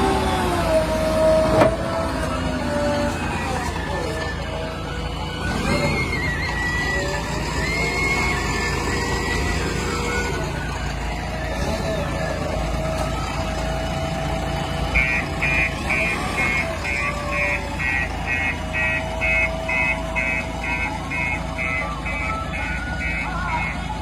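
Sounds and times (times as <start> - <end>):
heavy diesel machinery running: 0.0 - 24.0
reversing alarm beeping: 12.9 - 24.0.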